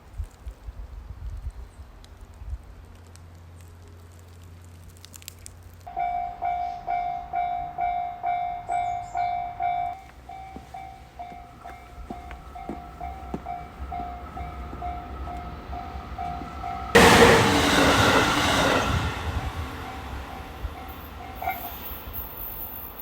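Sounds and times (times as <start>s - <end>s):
level crossing warning bell: 5.9s - 23.0s.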